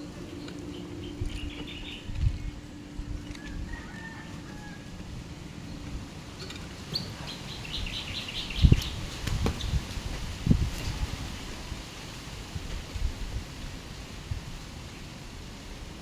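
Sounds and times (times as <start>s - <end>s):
bird chirping: 0.2s - 2.9s, 6.4s - 9.8s.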